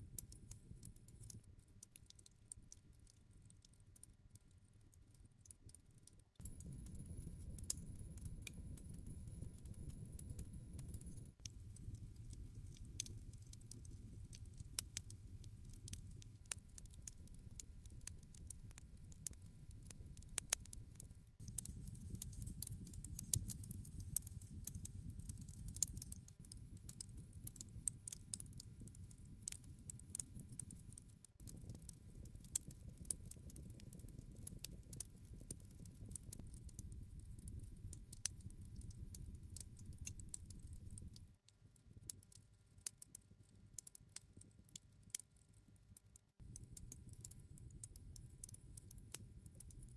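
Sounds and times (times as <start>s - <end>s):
low rumble of flames: 6.4s - 20.8s, 21.4s - 41.3s
campfire crackling and popping: 10.8s - 41.2s.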